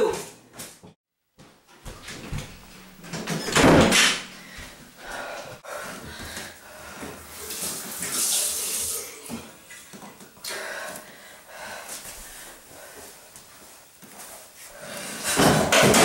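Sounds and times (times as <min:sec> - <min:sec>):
door banging shut: 0:03.1 - 0:04.3
water running in sink: 0:07.2 - 0:10.2.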